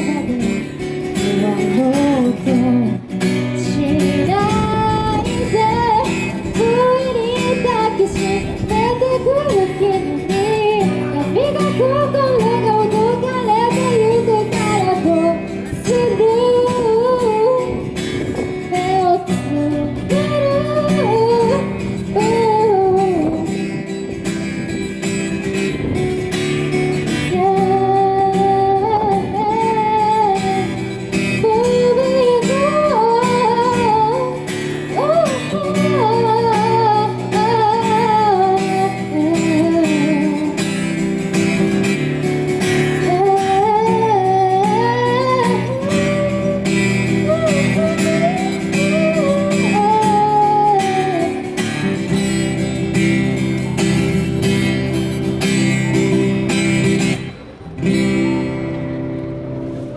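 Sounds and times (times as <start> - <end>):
woman singing: 0.0 - 24.2, 26.5 - 56.3
strummed acoustic guitar: 0.0 - 59.9
wind buffeting microphone: 3.4 - 34.2.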